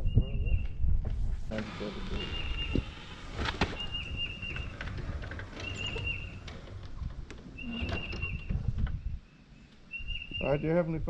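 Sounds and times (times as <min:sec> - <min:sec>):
low outdoor rumble: 0:01.1 - 0:09.9
bird whistled call: 0:09.2 - 0:10.6.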